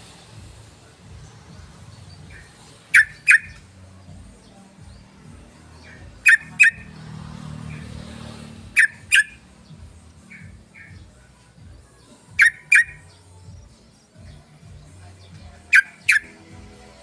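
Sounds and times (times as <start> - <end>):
bird giving sharp calls: 2.2 - 3.7, 5.8 - 7.0, 7.6 - 9.6, 12.4 - 13.1, 15.6 - 16.4.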